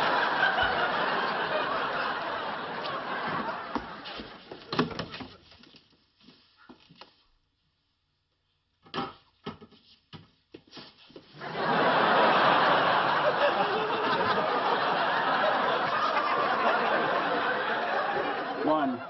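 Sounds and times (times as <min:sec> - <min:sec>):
studio audience laughing: 0:00.0 - 0:04.8, 0:11.4 - 0:19.0.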